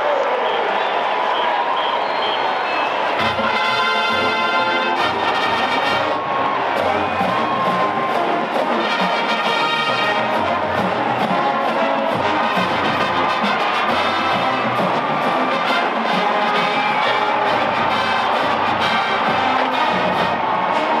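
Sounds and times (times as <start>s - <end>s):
marching band playing: 3.0s - 21.0s
brass sustained chords: 3.2s - 21.0s
steady drum beat: 5.0s - 21.0s.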